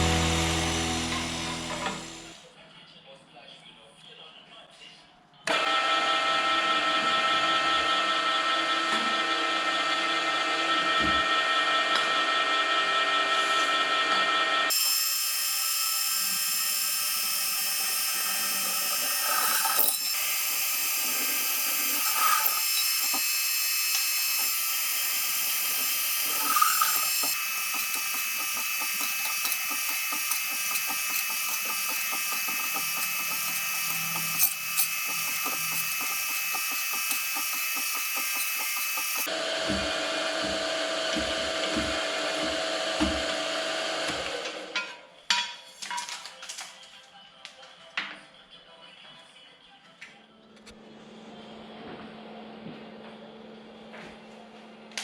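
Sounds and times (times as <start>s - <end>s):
power tool whining on metal: 5.5s - 44.7s.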